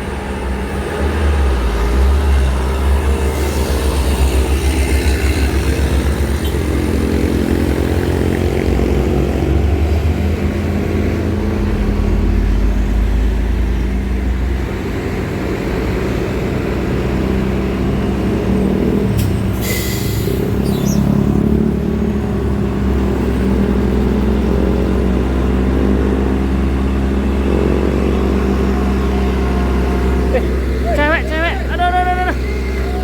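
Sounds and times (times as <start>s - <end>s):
truck diesel engine under load: 0.0s - 33.0s.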